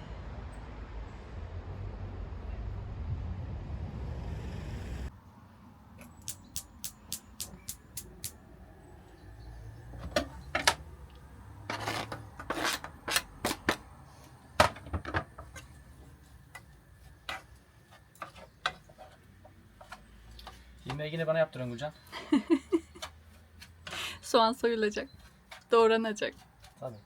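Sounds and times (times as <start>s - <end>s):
scraping sounds: 11.6s - 14.4s, 15.3s - 21.2s.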